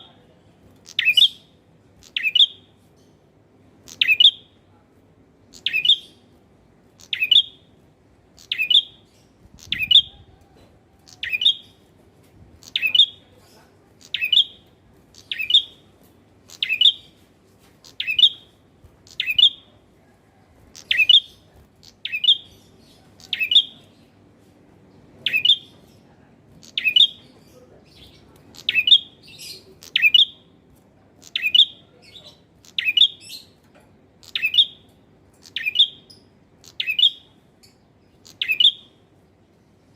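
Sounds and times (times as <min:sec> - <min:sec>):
bird chirping call: 0:00.9 - 0:03.2, 0:03.9 - 0:04.5, 0:05.5 - 0:06.2, 0:07.0 - 0:07.7, 0:08.4 - 0:11.9, 0:12.6 - 0:13.3, 0:14.0 - 0:15.8, 0:16.5 - 0:17.2, 0:17.8 - 0:24.1, 0:25.2 - 0:26.0, 0:26.6 - 0:30.4, 0:31.2 - 0:33.6, 0:34.2 - 0:39.0.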